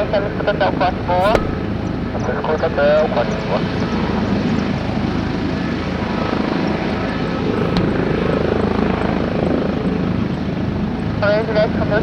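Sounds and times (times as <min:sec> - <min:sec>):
sharp click: 0:01.2 - 0:02.0.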